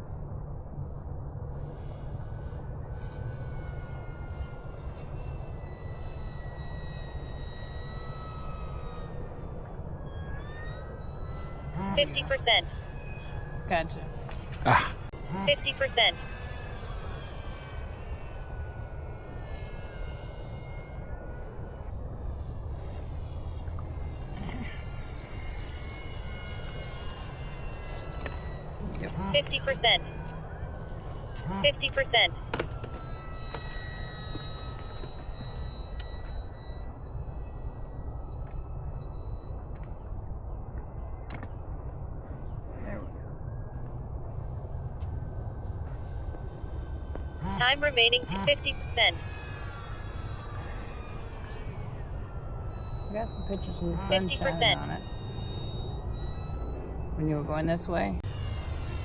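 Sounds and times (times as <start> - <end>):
model jet fan whine: 0.0 - 11.8, 16.0 - 29.2, 32.2 - 48.1, 48.8 - 59.0
electric jet fan whine: 48.8 - 59.0.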